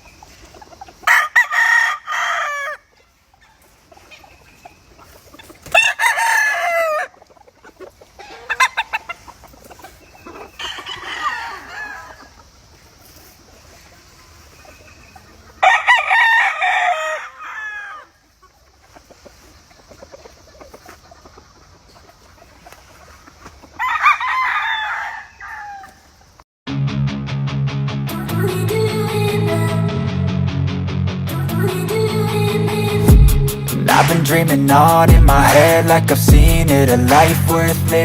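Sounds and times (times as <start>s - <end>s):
roosters crowing: 0.0s - 4.4s, 5.1s - 12.7s, 14.8s - 18.2s, 23.6s - 26.2s
guitar music: 26.7s - 38.0s.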